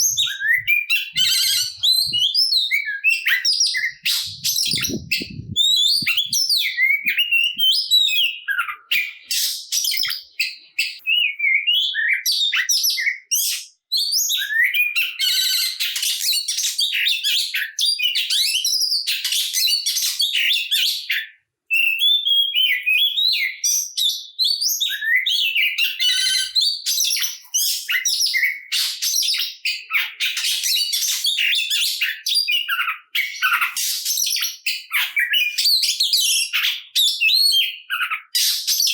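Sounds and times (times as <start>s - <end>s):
bird singing whistles and chatters: 0.0s - 38.9s.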